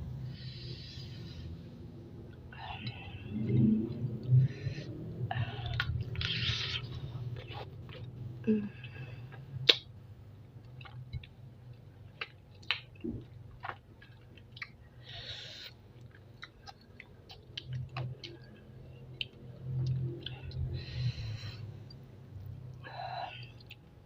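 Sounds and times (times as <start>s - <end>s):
person chewing: 5.4s - 8.2s, 10.6s - 21.0s
sharp mouth clicks: 9.6s - 9.9s.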